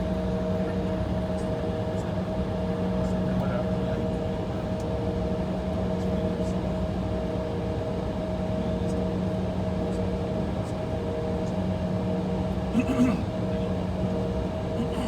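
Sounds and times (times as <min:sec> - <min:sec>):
aircraft cabin drone: 0:07.3 - 0:15.0.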